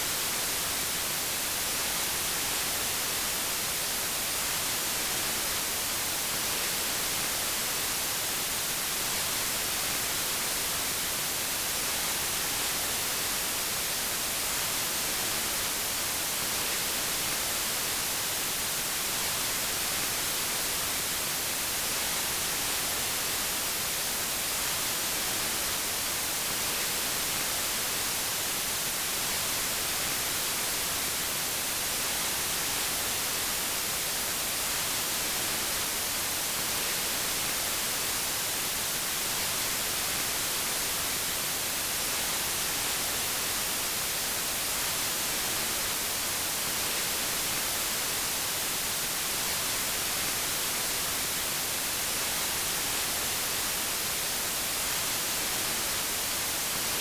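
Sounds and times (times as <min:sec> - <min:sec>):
white noise hiss: 0:00.0 - 0:57.0.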